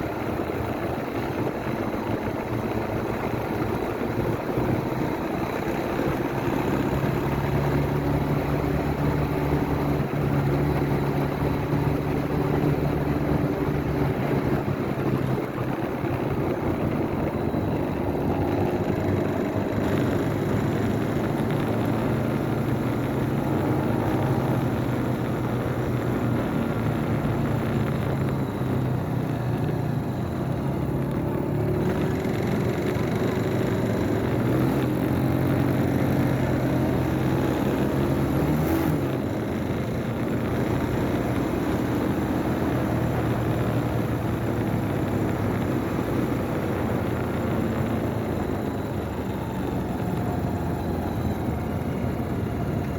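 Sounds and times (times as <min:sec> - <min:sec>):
motorcycle engine running: 0:00.0 - 0:52.9
road noise: 0:00.0 - 0:52.9.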